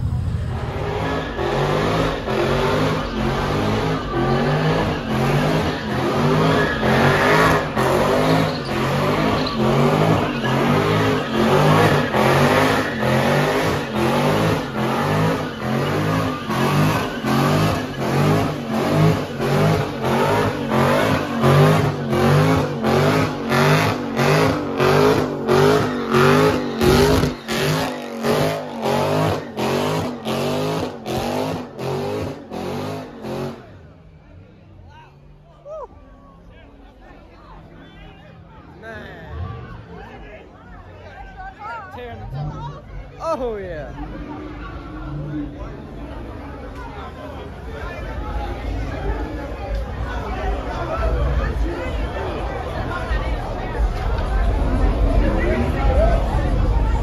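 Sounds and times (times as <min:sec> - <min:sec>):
car engine revving hard: 0:00.0 - 0:33.8.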